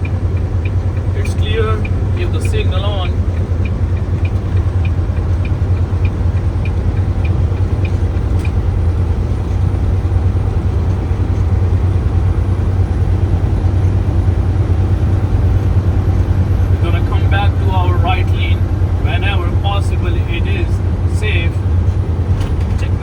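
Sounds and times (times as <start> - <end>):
turn signal clicking: 0.0 - 10.0
road noise: 0.0 - 23.0
truck engine drone: 0.0 - 23.0.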